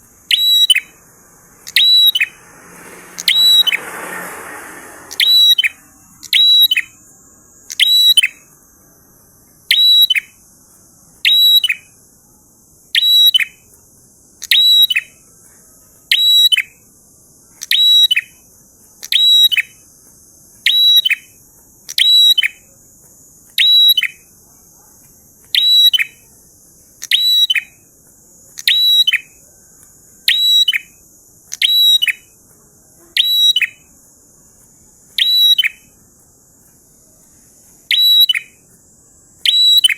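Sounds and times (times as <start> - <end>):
bird singing high phrases: 0.0 - 3.9, 4.8 - 8.6, 9.6 - 10.4, 11.2 - 12.0, 12.9 - 13.7, 14.4 - 15.2, 16.0 - 16.8, 17.5 - 19.8, 20.6 - 22.7, 23.5 - 24.3, 25.5 - 26.2, 27.0 - 27.8, 28.6 - 29.4, 30.2 - 32.4, 33.2 - 33.9, 35.1 - 36.0, 37.8 - 38.7, 39.4 - 39.9
faint high hiss: 0.0 - 7.8.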